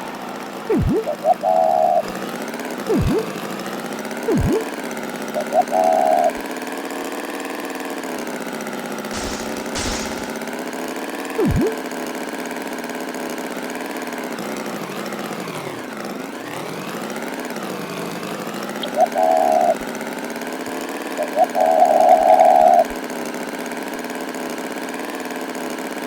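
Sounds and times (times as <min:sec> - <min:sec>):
cartoon tractor engine: 0:00.0 - 0:06.9, 0:09.1 - 0:10.5, 0:11.3 - 0:12.4.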